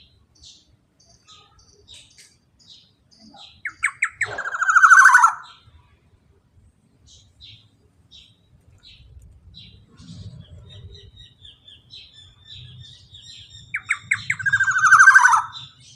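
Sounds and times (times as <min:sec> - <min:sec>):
bird giving sharp notes and trill: 0:00.0 - 0:05.7, 0:09.6 - 0:15.9.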